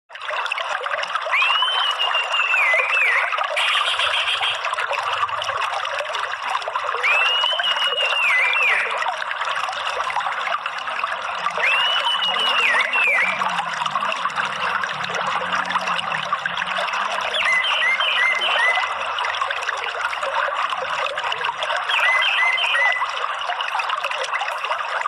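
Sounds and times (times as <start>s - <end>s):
water trickling: 0.1s - 25.0s
thrush whistled calls: 1.3s - 4.7s, 7.0s - 9.0s, 11.6s - 13.5s, 17.2s - 19.0s, 21.8s - 23.1s.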